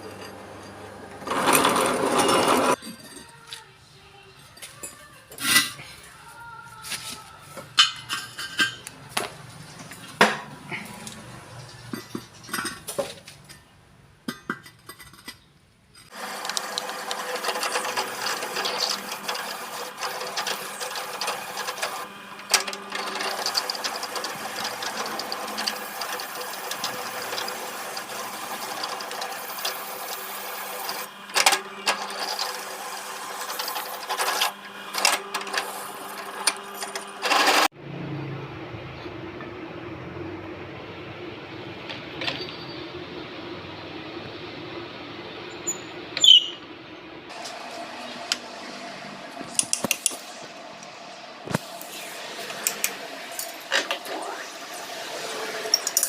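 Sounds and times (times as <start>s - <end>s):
machine running with rattle: 0.0s - 3.4s, 16.0s - 37.7s.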